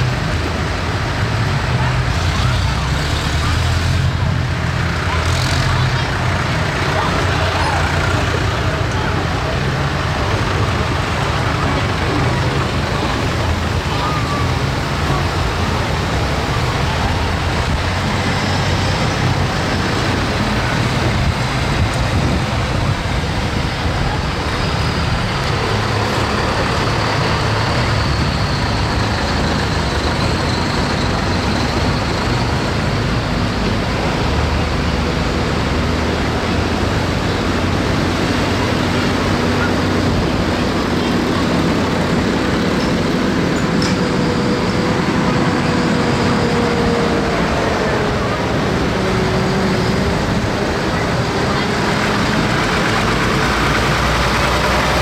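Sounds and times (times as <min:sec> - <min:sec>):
road noise: 0:00.0 - 0:55.0
tractor engine drone: 0:00.0 - 0:55.0.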